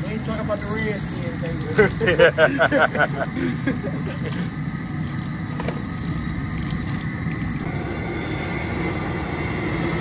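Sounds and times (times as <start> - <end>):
water coming to the boil: 0.0 - 9.6
gas burner roaring: 0.0 - 10.0.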